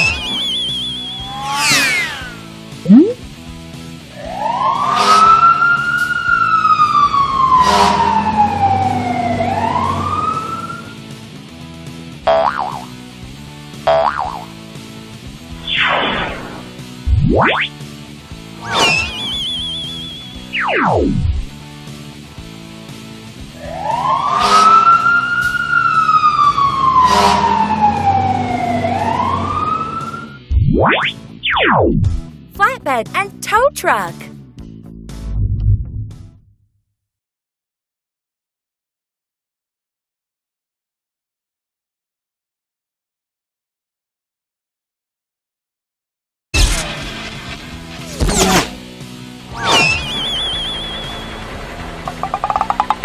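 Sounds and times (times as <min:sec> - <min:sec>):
wailing siren: 0:04.2 - 0:11.0, 0:23.6 - 0:30.4.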